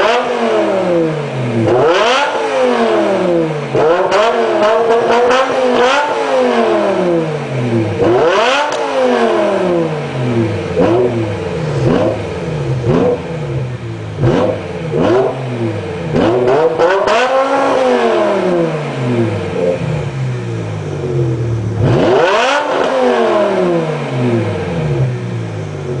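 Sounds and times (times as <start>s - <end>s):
car engine revving: 0.0s - 26.0s
car engine idling: 9.4s - 22.8s, 23.9s - 26.0s.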